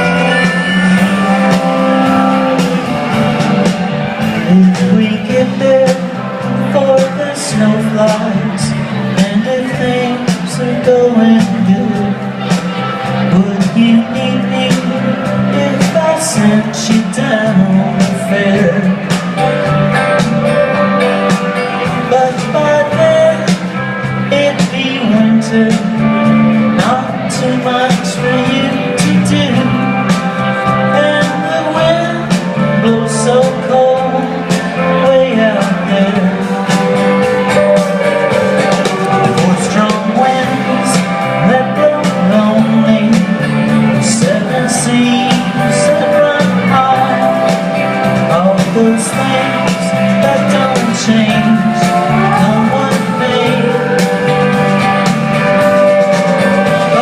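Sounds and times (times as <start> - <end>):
band playing a song: 0.0 - 57.0
person singing: 0.0 - 57.0
steady bass line: 0.0 - 57.0
drum or cymbal hits: 35.6 - 43.4.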